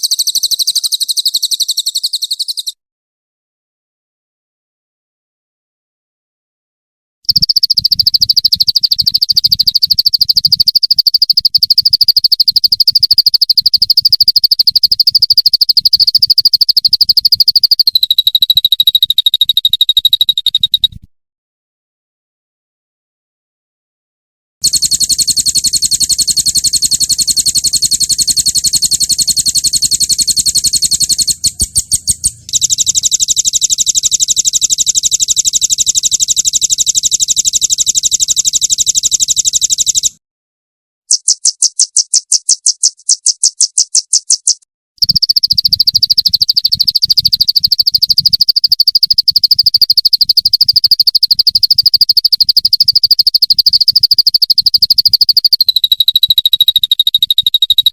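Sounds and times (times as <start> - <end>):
lower steady bird trill: 0.0 - 2.8, 7.3 - 21.0, 24.6 - 40.2, 41.1 - 57.9
songbird fast high trills: 0.0 - 2.8.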